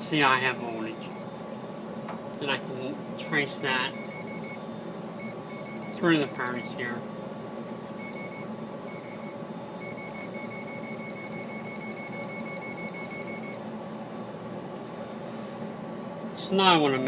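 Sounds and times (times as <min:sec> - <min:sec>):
steady low hum: 0:00.0 - 0:17.0
voltage tester beeping: 0:00.5 - 0:01.3, 0:03.2 - 0:06.9, 0:08.0 - 0:13.6.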